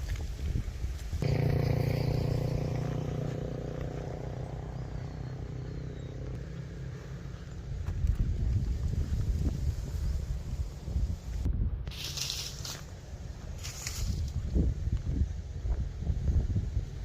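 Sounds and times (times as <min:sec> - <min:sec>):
rough low noise: 0:01.2 - 0:06.5
engine humming: 0:01.2 - 0:09.4.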